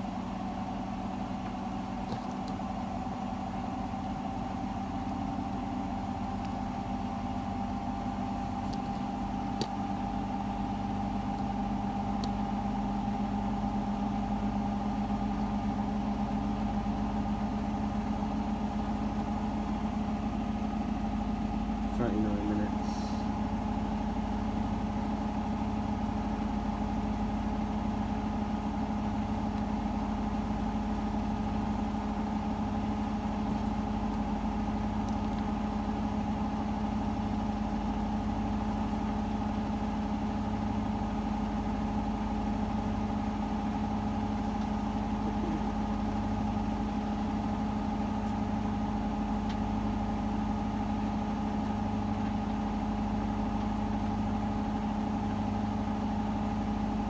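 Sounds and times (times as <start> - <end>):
washing machine spinning: 0.0 - 57.0.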